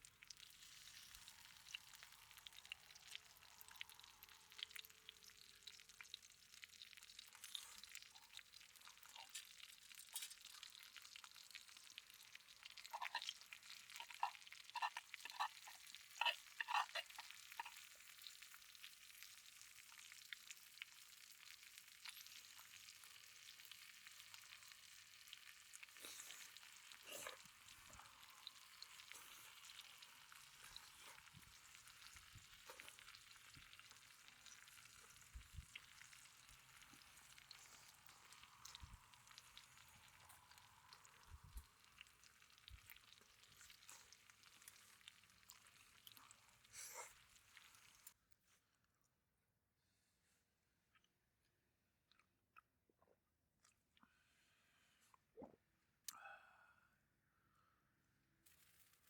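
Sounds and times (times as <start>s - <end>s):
food sizzling in a pan: 0.0s - 48.2s
oil popping and spitting: 0.1s - 21.0s, 21.9s - 48.2s.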